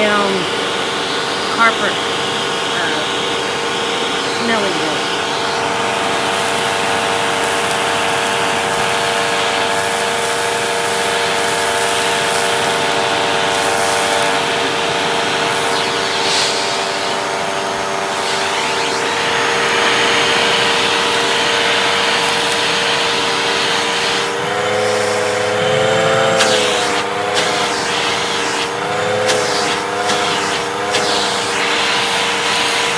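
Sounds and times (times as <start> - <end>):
vacuum cleaner running: 0.0 - 32.9.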